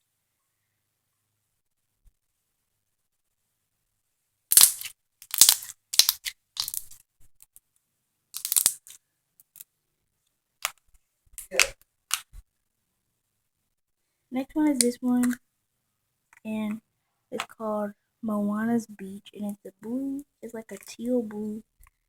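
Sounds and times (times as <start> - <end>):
slime squelching by hand: 4.5 - 7.0.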